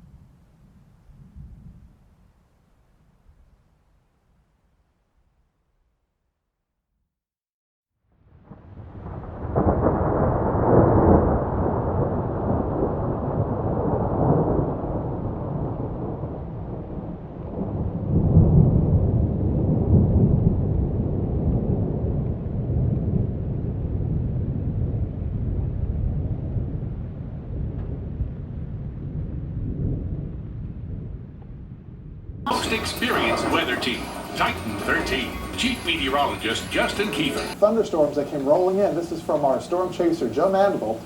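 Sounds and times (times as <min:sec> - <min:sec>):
thunder rolling: 0:08.3 - 0:31.4.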